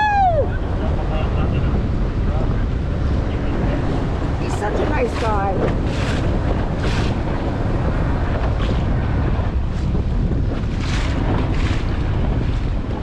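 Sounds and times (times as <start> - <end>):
boat motor rumble: 0.0 - 13.0
wind buffeting microphone: 0.0 - 13.0.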